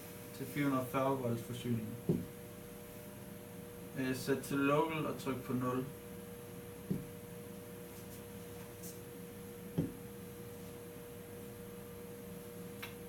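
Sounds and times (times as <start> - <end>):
electrical hum: 0.0 - 13.0
soft thuds: 2.0 - 2.4, 6.9 - 7.2, 9.8 - 10.0.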